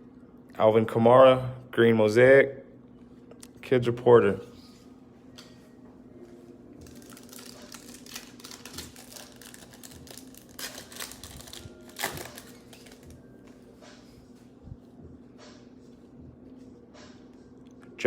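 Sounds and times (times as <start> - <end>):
foil wrapper crinkling: 6.8 - 13.2.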